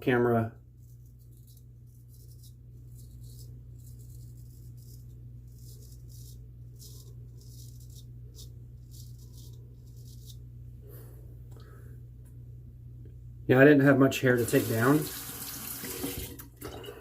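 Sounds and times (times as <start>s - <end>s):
steady low hum: 0.0s - 14.5s
razor scraping stubble: 0.8s - 10.5s.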